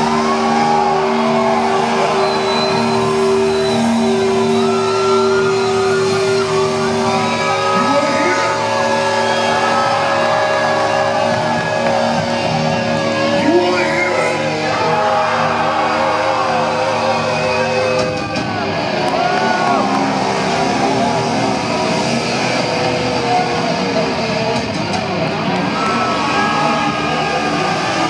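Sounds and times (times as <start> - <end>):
shouted vocals: 0.0 - 21.6
live metal band playing: 0.0 - 28.0.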